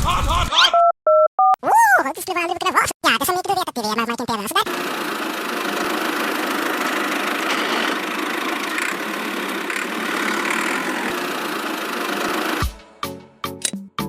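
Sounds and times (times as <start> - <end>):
small motor running: 4.6 - 12.7.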